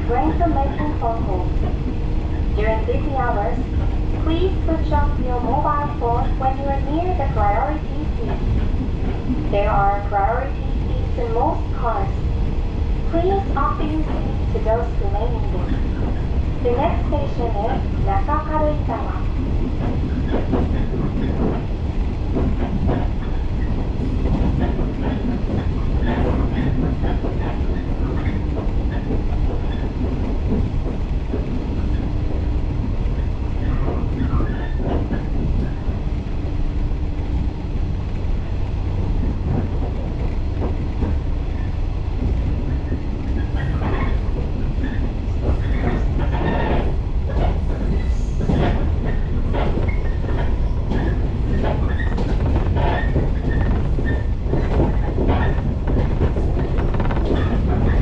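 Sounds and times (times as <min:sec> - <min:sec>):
train wheels rumbling on rail: 0:00.0 - 0:58.0
track clicks and knocks: 0:38.1 - 0:58.0.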